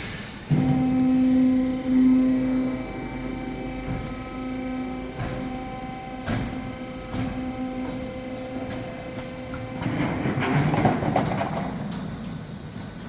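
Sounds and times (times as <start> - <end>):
steady mechanical hum: 0.0 - 13.0
sharp knocks: 5.2 - 11.8.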